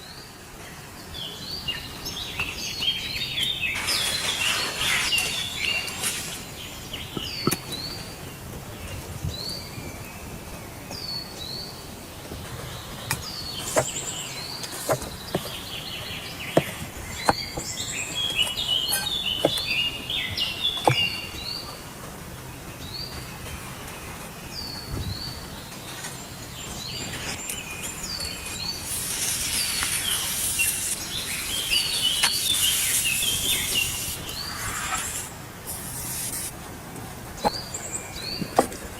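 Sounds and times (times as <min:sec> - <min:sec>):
bird chirping and singing: 0:01.5 - 0:08.1, 0:24.5 - 0:36.5
steady hiss: 0:03.5 - 0:07.6, 0:13.3 - 0:21.5, 0:23.4 - 0:36.6.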